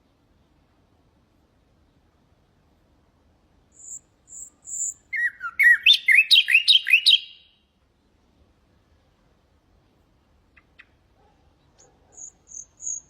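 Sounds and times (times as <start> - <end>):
nightingale singing: 3.7 - 7.7, 10.4 - 13.0.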